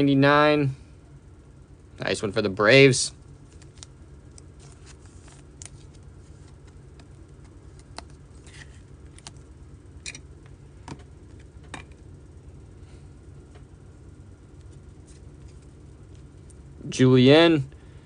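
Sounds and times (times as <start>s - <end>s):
low hum: 0.0s - 18.0s
cards clicking and sliding: 4.5s - 9.4s.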